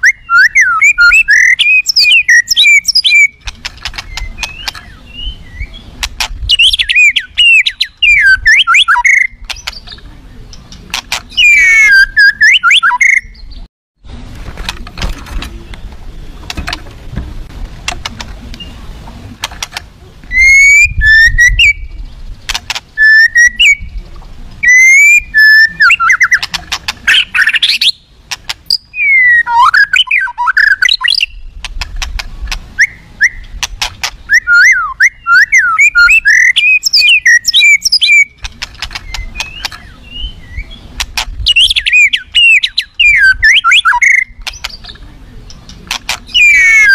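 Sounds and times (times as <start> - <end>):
bird singing whistled phrases: 0.0 - 3.4, 4.0 - 5.9, 6.5 - 9.9, 11.3 - 13.6, 20.3 - 22.0, 23.0 - 24.0, 24.6 - 26.4, 28.7 - 31.4, 32.8 - 33.5, 34.3 - 38.4, 39.0 - 40.8, 41.5 - 44.9, 46.3 - 46.9
bird clicking notes: 1.6 - 5.0, 41.0 - 46.9.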